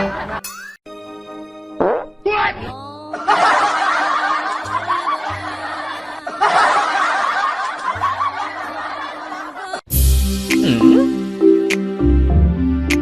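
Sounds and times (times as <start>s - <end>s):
laughter: 0.0s - 0.7s, 3.1s - 9.9s
background music: 0.0s - 13.0s.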